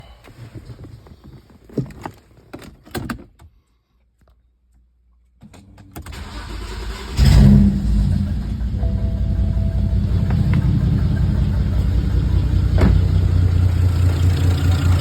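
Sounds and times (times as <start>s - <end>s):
starter cranking engine: 6.1s - 8.6s
car engine idling: 6.2s - 15.0s.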